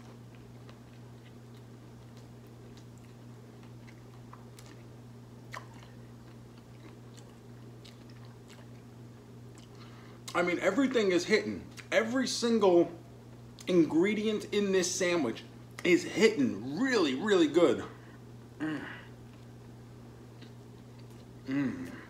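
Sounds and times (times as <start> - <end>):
closed-mouth chewing: 0.0 - 10.4, 18.7 - 22.0.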